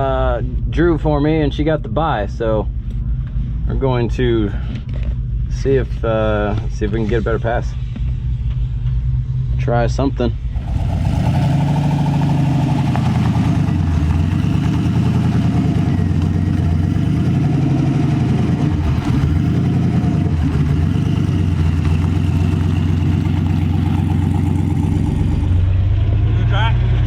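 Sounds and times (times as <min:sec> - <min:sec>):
engine running at low revs: 0:00.0 - 0:27.0.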